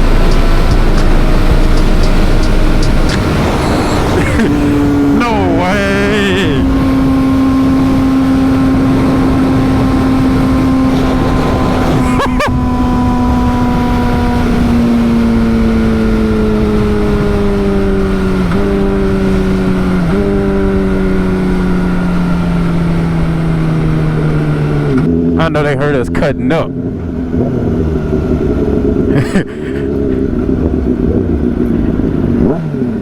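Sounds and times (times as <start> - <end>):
rushing noise: 0.0 - 6.9
motorcycle engine at high revs: 0.0 - 25.5, 26.1 - 33.0.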